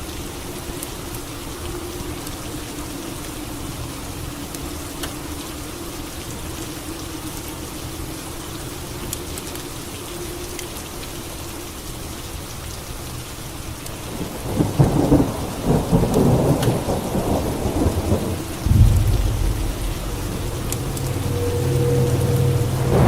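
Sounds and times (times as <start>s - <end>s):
steady rain: 0.0s - 23.0s
thunder rolling: 14.5s - 23.0s.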